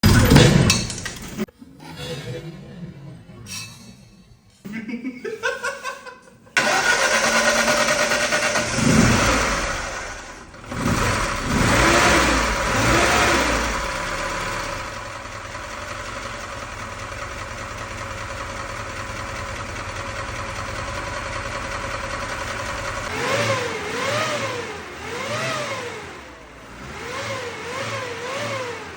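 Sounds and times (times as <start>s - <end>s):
car engine starting and revving: 6.6s - 28.9s.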